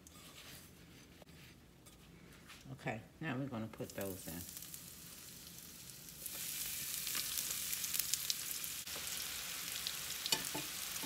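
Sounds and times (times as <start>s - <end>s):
fries sizzling in hot oil: 3.8s - 11.0s.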